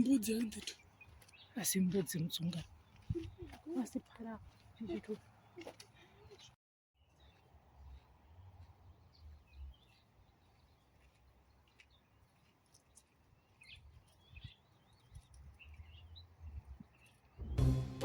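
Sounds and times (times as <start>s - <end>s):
bird chirps and calls: 13.4s - 17.3s.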